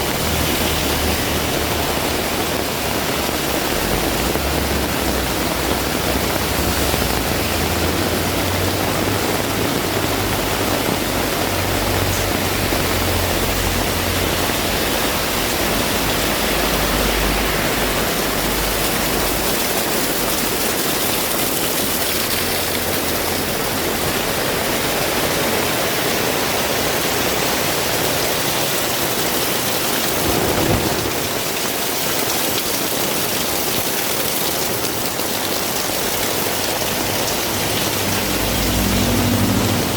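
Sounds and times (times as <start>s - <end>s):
heavy rain falling: 0.0s - 39.9s
low rumble: 30.1s - 31.6s.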